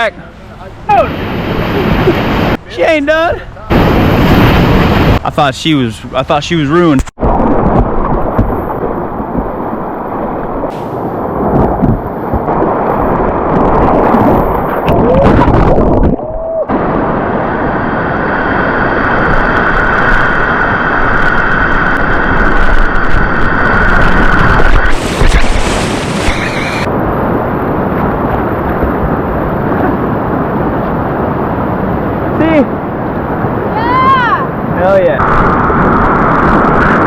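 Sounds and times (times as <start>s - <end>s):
wind buffeting microphone: 7.1s - 37.0s
whitewater rapids rushing: 23.7s - 26.9s.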